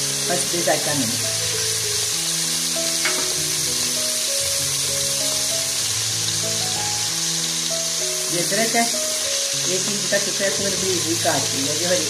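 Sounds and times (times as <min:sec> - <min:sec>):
onions sizzling and bubbling: 0:00.0 - 0:12.0
soft background music: 0:00.0 - 0:12.0.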